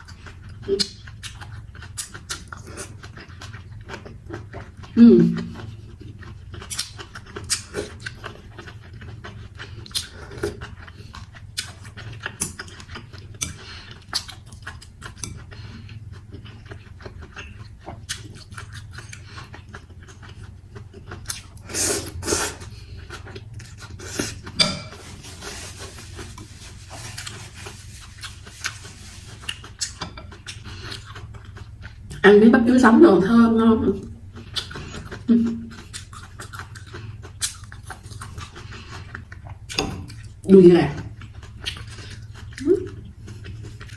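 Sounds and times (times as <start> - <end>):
chewing: 0.0 - 32.3, 34.2 - 43.9
slurping: 21.3 - 31.1.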